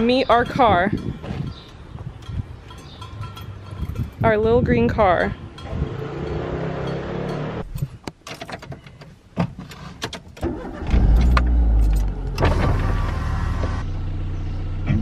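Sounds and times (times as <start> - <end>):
car engine starting and idling: 10.4 - 15.0.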